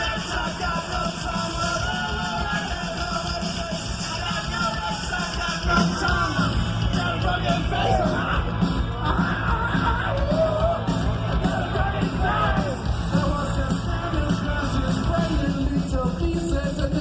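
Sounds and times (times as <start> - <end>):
person singing: 0.0 - 17.0
rock band playing: 0.0 - 17.0.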